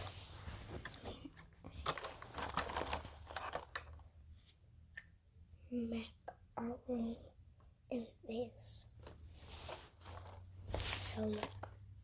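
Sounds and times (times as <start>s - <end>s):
packaging crinkling and tearing: 1.8s - 4.0s.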